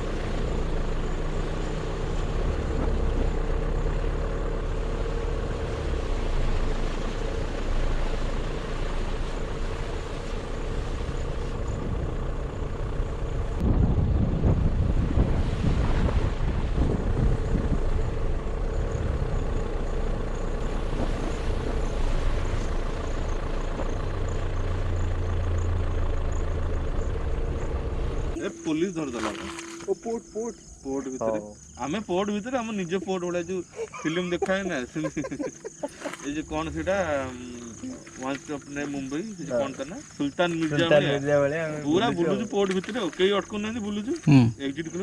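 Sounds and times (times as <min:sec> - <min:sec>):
wind buffeting microphone: 0:13.4 - 0:19.8
motorcycle engine running: 0:16.5 - 0:28.6.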